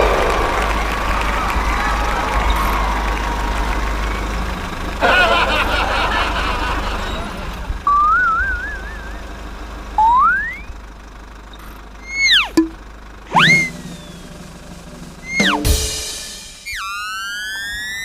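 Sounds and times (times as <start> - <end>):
wobbling whistle-like tone: 7.9 - 9.2, 10.0 - 10.7, 12.0 - 14.2, 15.2 - 15.8, 16.6 - 18.0
rising slide whistle: 7.9 - 9.3, 10.0 - 10.7, 12.0 - 12.7, 13.3 - 14.4, 15.2 - 18.0.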